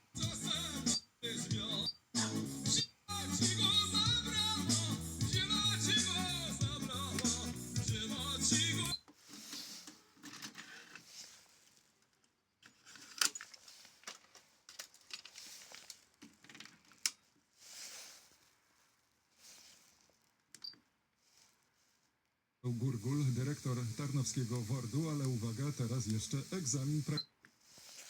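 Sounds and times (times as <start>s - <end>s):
car stereo music: 0.0s - 9.0s.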